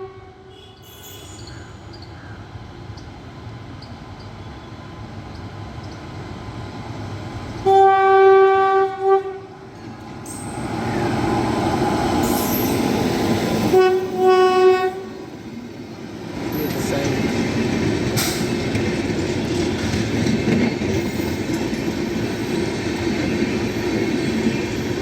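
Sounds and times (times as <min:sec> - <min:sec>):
locomotive horn blasts: 0:00.0 - 0:01.4, 0:07.6 - 0:09.6, 0:13.7 - 0:15.2
train running noise: 0:00.0 - 0:25.0.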